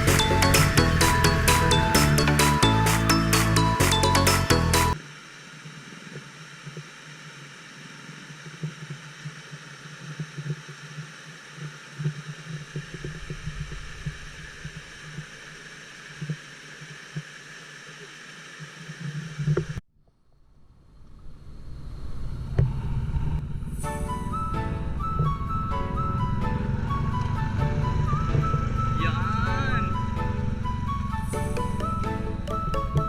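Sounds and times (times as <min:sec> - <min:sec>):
scooter engine running: 0:00.0 - 0:05.0, 0:26.0 - 0:33.0
road and wind noise: 0:21.0 - 0:33.0.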